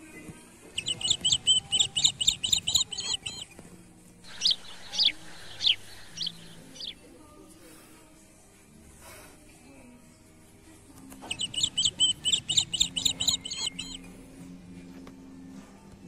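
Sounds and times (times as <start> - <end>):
small birds chirping: 0.6 - 3.6, 4.2 - 7.2, 11.1 - 14.1.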